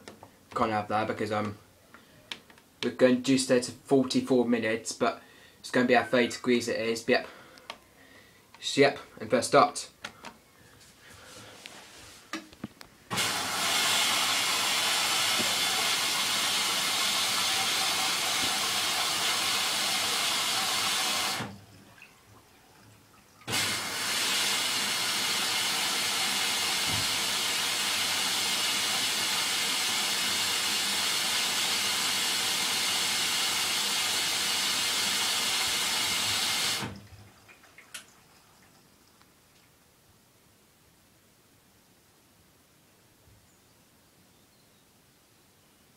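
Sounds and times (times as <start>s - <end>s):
water rushing into washing machine: 13.1s - 38.7s.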